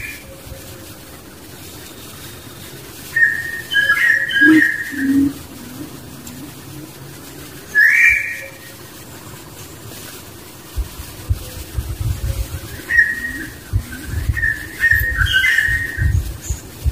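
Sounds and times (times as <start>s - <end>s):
faint ambient hum: 0.0s - 16.9s
bird whistling: 2.2s - 5.9s, 7.7s - 8.8s, 12.3s - 16.6s.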